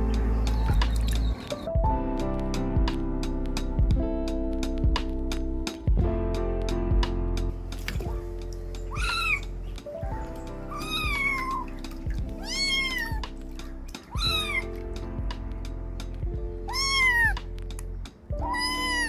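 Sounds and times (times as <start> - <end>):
background music: 0.0 - 19.0
kitten meowing: 8.9 - 9.7, 10.6 - 11.8, 12.4 - 13.3, 14.1 - 14.8, 16.6 - 17.4, 18.4 - 19.0.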